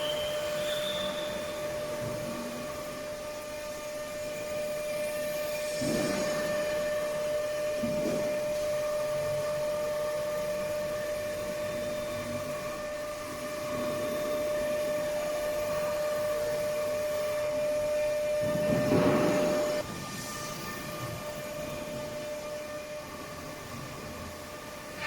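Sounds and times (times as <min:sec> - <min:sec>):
router spindle whine: 0:00.0 - 0:08.6.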